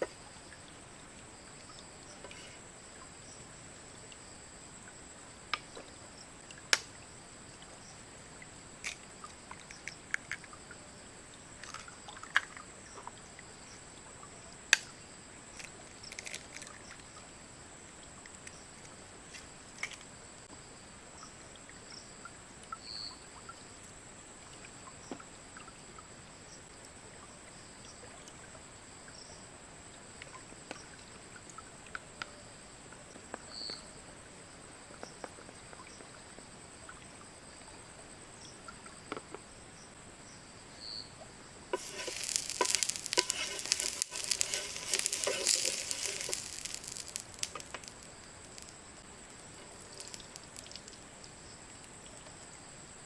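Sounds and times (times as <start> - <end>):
insects droning: 0.0 - 53.0
sharp clicks and knocks: 41.8 - 48.7.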